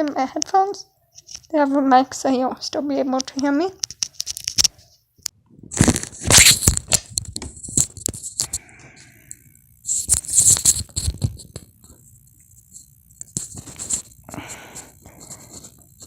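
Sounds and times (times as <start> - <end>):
headset rustling and rubbing: 12.6 - 16.0.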